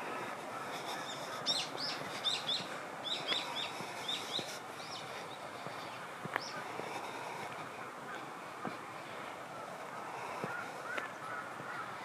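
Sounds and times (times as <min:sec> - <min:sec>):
outdoor background hiss: 0:00.0 - 0:12.0
small bird chirping: 0:01.1 - 0:05.4.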